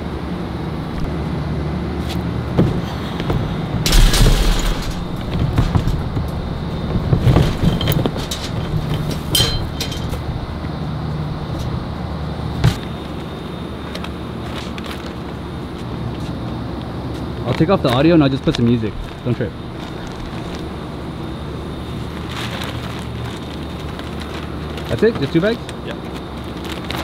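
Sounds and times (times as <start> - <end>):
knocks and thuds: 2.5 - 10.3
clatter: 2.6 - 10.3.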